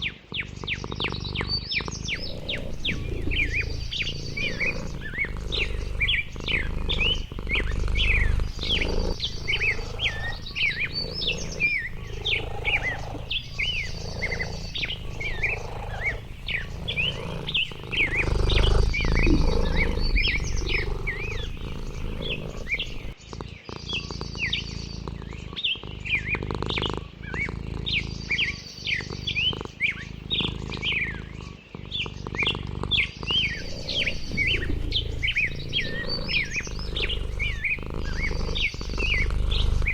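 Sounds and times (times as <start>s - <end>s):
birds chirping: 0.0s - 39.9s
high buzzy bird trill: 2.0s - 23.2s.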